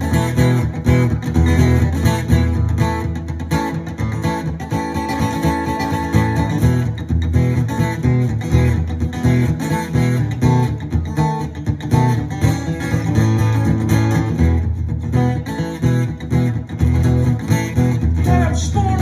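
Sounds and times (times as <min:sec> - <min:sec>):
strummed guitar: 0:00.0 - 0:19.0
steady bass line: 0:11.9 - 0:19.0.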